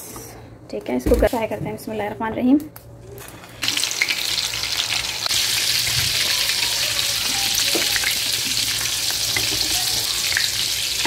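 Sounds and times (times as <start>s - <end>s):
meat sizzling in hot oil: 3.5s - 11.0s.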